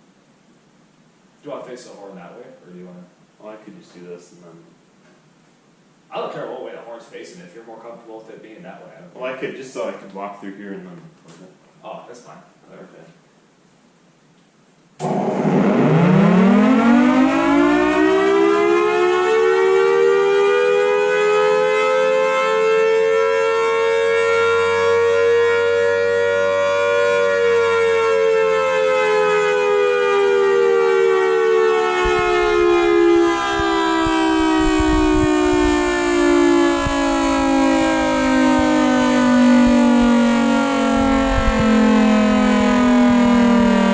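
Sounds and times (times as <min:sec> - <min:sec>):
warning siren rising and falling: 0:15.0 - 0:43.9.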